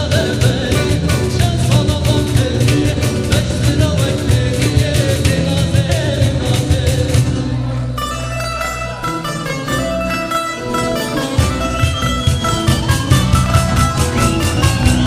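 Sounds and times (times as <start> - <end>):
steady drum beat: 0.0 - 7.6, 11.4 - 15.0
plucked string instruments: 0.0 - 15.0.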